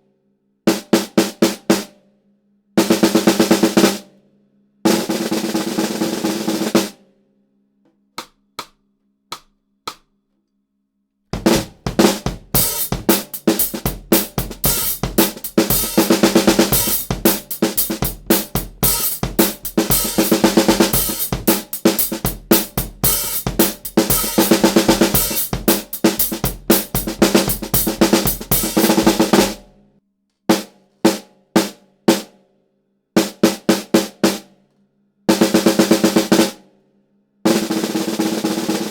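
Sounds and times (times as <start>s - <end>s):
fast drum beat: 2.8s - 4.0s, 4.9s - 6.9s, 11.4s - 29.8s, 35.3s - 36.6s, 37.5s - 38.9s
snare drum roll: 2.8s - 4.0s, 4.9s - 7.0s, 11.4s - 29.8s, 37.5s - 38.9s
hi-hats: 11.4s - 29.5s
snare drum hits: 11.4s - 29.7s
bass drum: 11.4s - 29.8s.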